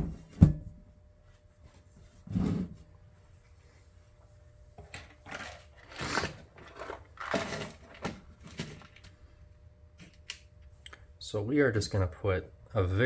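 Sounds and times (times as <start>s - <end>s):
low steady hum: 0.0s - 13.0s
handling rustles and scrapes: 4.8s - 9.2s.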